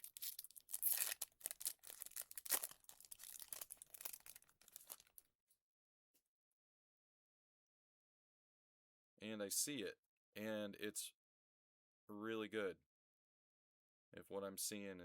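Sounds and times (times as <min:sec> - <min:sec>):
foil wrappers crinkling and tearing: 0:00.0 - 0:05.2.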